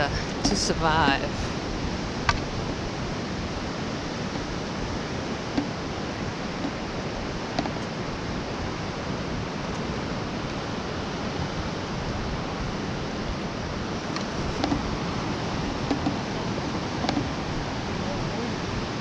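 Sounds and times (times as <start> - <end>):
ocean surf on beach: 0.0 - 19.0.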